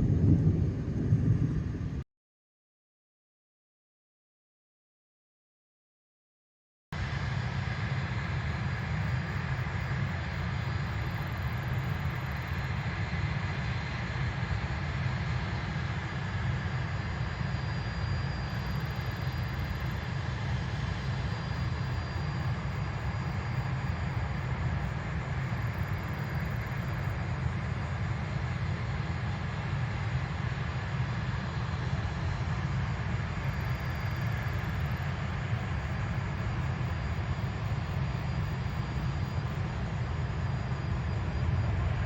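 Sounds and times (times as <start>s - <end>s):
jet engines running: 0.0s - 2.0s, 7.0s - 42.0s.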